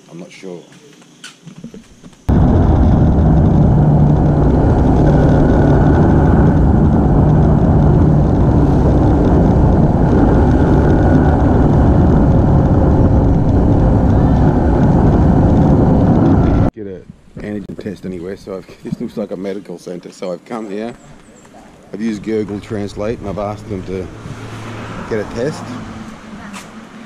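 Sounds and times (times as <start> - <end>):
wind noise on microphone: 1.6 - 19.2, 22.0 - 26.9
motorbike engine running: 2.3 - 16.7.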